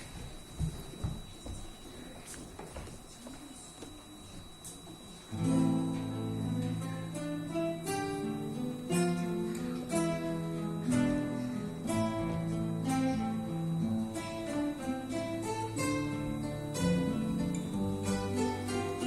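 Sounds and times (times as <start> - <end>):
acoustic guitars playing: 5.3 - 19.0.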